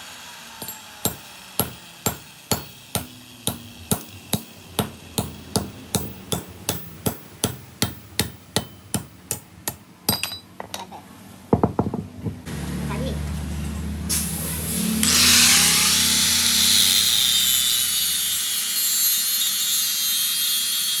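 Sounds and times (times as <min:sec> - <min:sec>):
hammer striking steel: 0:00.6 - 0:10.5.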